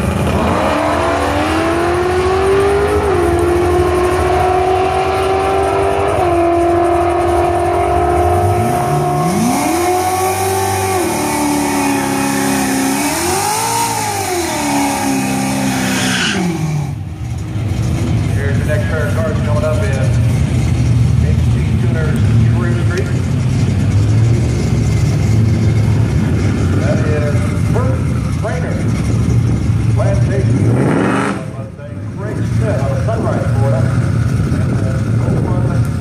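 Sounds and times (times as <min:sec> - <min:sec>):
car accelerating through gear shifts: 0:00.0 - 0:17.0, 0:20.1 - 0:31.6
engine revving: 0:00.0 - 0:17.0, 0:17.7 - 0:36.0.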